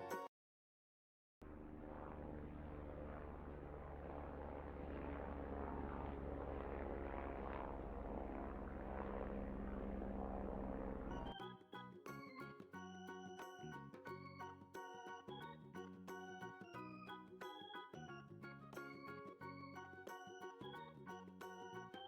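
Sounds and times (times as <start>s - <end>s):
aircraft engine and propeller drone: 1.5s - 11.4s.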